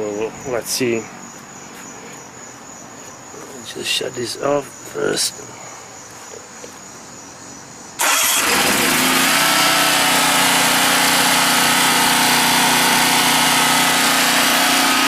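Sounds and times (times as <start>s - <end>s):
generator engine running: 8.0s - 15.0s.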